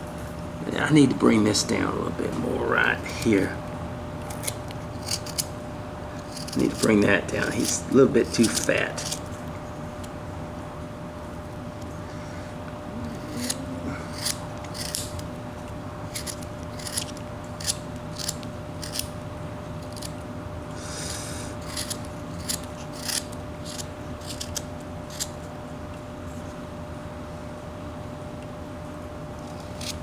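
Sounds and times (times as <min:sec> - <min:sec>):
knife cutting wood shavings: 0:01.5 - 0:03.6, 0:04.2 - 0:09.4, 0:13.1 - 0:19.1, 0:20.8 - 0:25.3, 0:29.4 - 0:30.0
knife scraping wood: 0:04.2 - 0:09.4, 0:13.0 - 0:19.1, 0:19.8 - 0:20.2, 0:20.8 - 0:25.4, 0:29.4 - 0:30.0.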